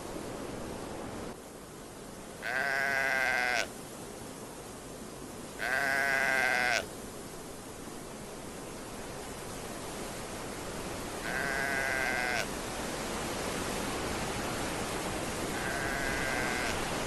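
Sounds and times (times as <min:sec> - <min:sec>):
steady hiss: 0:00.0 - 0:17.0
livestock bleating: 0:02.4 - 0:03.7, 0:05.6 - 0:06.9, 0:11.2 - 0:12.5, 0:15.5 - 0:16.8.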